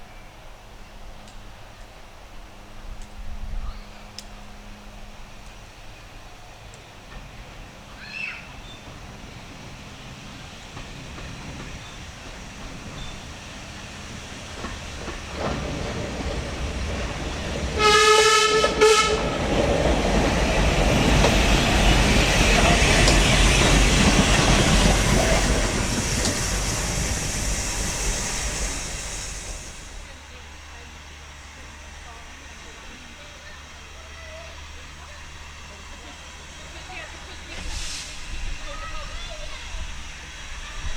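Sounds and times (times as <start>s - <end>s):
train passing: 0.0s - 40.9s
train horn blasts: 17.7s - 19.6s.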